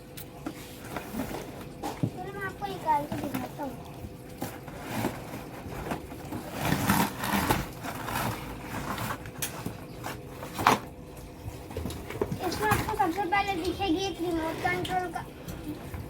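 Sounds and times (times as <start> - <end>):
packaging rustling and knocking: 4.4 - 11.0.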